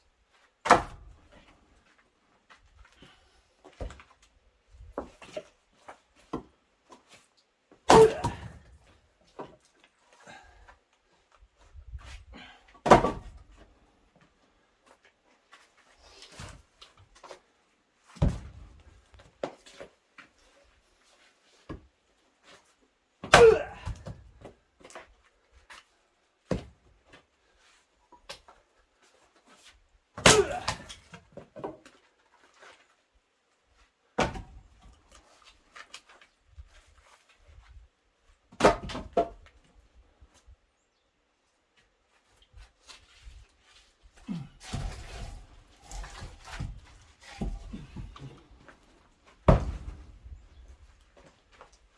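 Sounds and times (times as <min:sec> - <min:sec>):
axe splitting firewood: 0:00.6 - 0:01.1, 0:07.9 - 0:08.7, 0:12.8 - 0:13.4, 0:23.2 - 0:24.2, 0:30.2 - 0:31.8, 0:34.2 - 0:34.6, 0:38.5 - 0:39.4, 0:44.2 - 0:48.6, 0:49.4 - 0:50.2.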